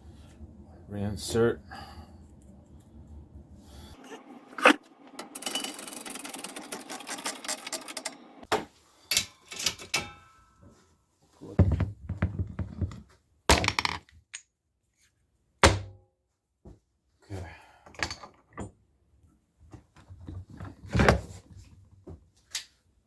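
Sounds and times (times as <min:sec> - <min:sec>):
press clicking and rattling: 0:04.0 - 0:08.5.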